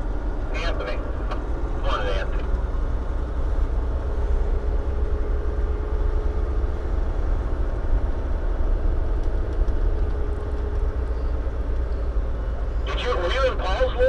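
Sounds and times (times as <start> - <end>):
truck diesel engine rumbling: 0.0 - 14.0.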